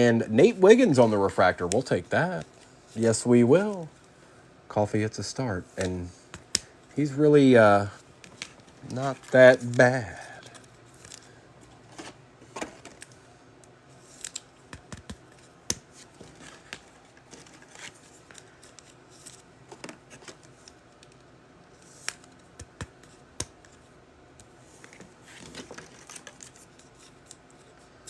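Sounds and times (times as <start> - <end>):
cards clicking and snapping: 12.8 - 23.8.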